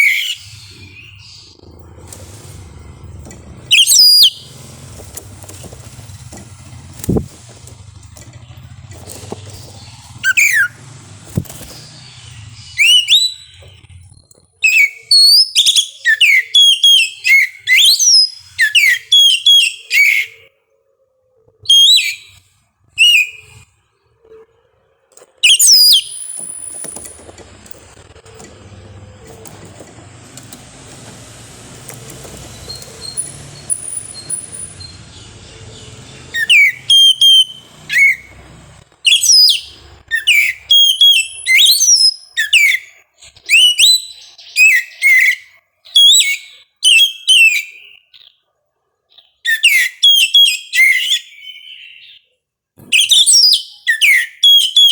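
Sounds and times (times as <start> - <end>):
bird singing whistled phrases: 0.0 - 1.5, 3.7 - 4.4, 10.2 - 10.7, 12.7 - 13.8, 14.6 - 20.4, 21.6 - 22.3, 23.0 - 23.6, 36.3 - 38.3, 39.1 - 48.4, 49.4 - 52.2, 52.9 - 54.9.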